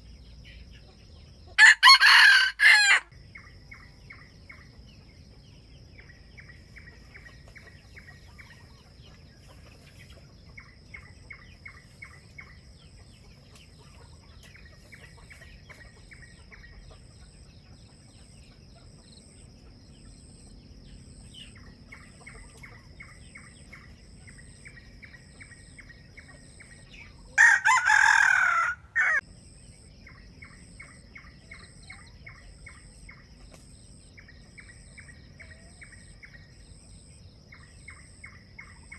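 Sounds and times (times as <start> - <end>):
rooster crowing: 1.6 - 3.2, 27.4 - 29.2.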